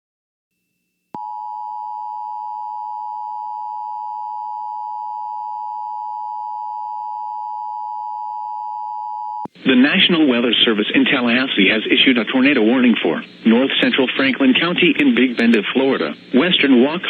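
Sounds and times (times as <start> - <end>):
two-tone alarm signal: 1.2 - 9.5.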